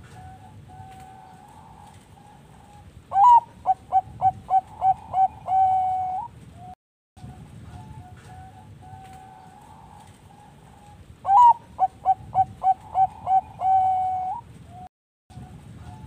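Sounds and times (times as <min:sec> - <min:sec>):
dove singing coos: 0:00.0 - 0:16.0
faint background dove cooing: 0:00.0 - 0:16.0.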